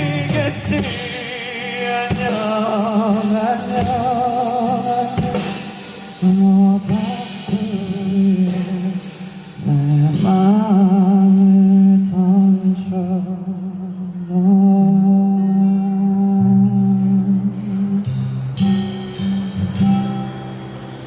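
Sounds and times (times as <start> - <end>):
live band playing pop ballad: 0.0 - 14.8, 15.4 - 21.0.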